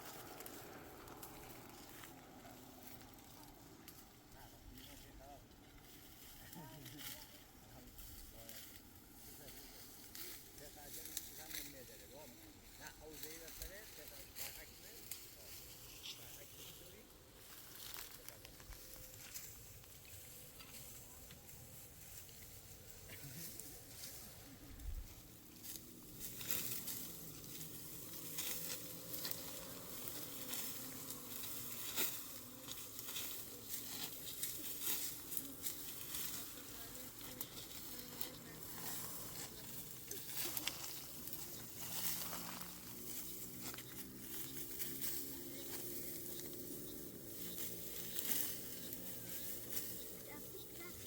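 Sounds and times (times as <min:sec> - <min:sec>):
sharp crackles and pops: 0:17.3 - 0:51.0.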